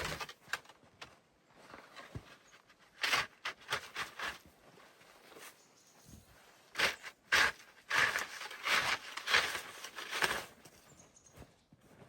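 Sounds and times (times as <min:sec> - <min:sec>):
footsteps crunching in snow: 0:08.6 - 0:12.0.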